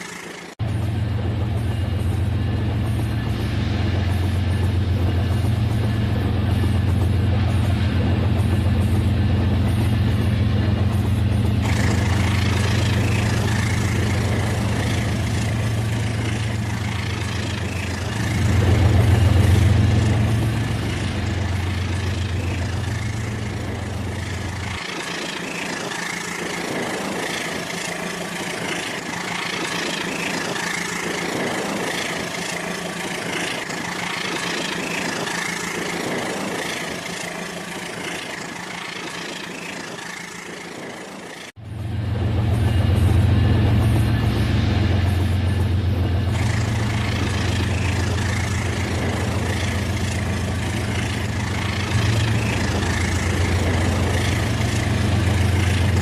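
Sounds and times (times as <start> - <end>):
toy train engine hum: 0.0 - 0.6, 9.6 - 41.6, 46.2 - 56.0
steady higher whirring: 0.0 - 56.0.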